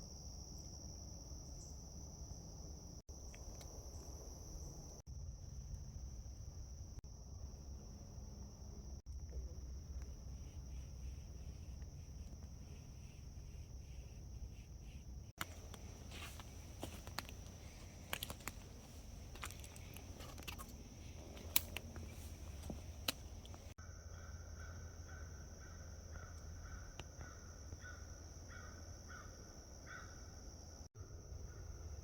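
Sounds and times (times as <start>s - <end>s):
high-pitched insect chorus: 0.0s - 32.0s
clicks and crackles: 15.4s - 23.8s.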